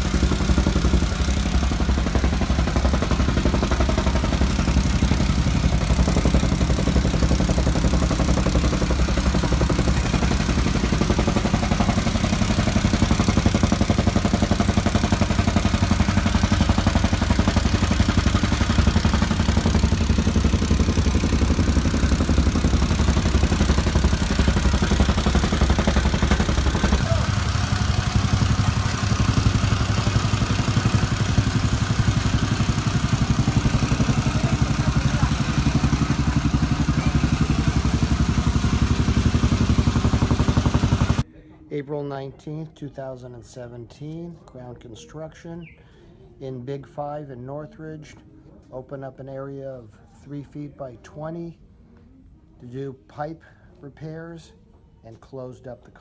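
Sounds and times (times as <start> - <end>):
soil compactor engine pulsing: 0.0 - 41.3.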